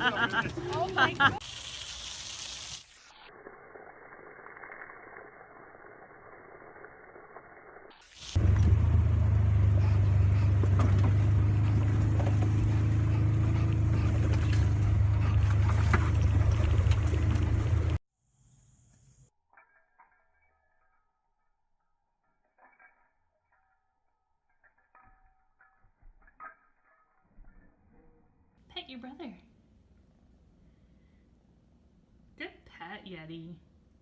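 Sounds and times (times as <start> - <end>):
vehicle engine rumble: 8.4 - 18.0.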